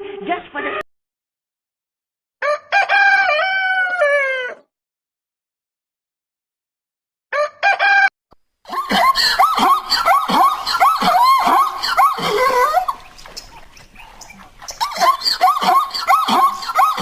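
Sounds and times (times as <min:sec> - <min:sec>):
animal squealing: 0:09.2 - 0:17.0.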